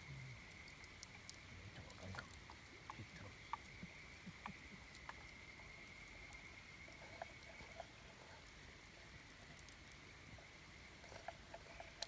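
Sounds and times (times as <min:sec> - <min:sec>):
campfire crackling: 0:00.0 - 0:12.0
fire pops and ticks: 0:00.3 - 0:12.0.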